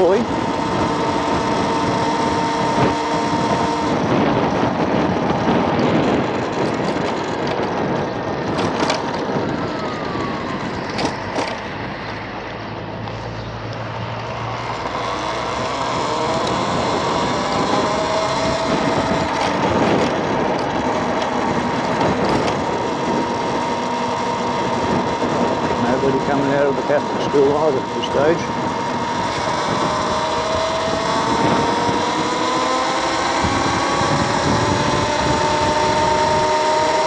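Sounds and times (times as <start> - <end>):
electric scooter whine: 0.0 - 37.0
wind noise on microphone: 0.0 - 37.0.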